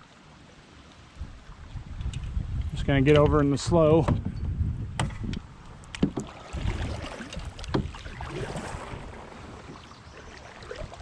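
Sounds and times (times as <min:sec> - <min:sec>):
water and wind rumble: 0:00.0 - 0:11.0
kayak clicks and knocks: 0:05.0 - 0:08.1.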